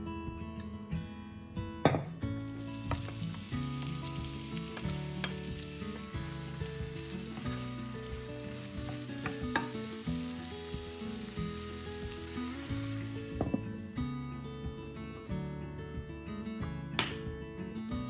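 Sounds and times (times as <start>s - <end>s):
background music: 0.0s - 18.0s
food sizzling in hot oil: 2.4s - 14.0s.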